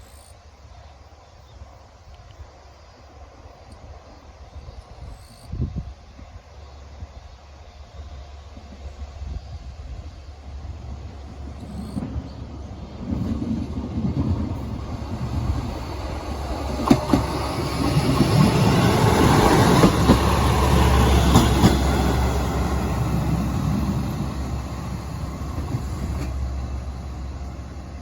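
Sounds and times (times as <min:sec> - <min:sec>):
diesel engine rumbling: 0:10.4 - 0:28.0
train wheels clacking over rail joints: 0:11.4 - 0:26.7.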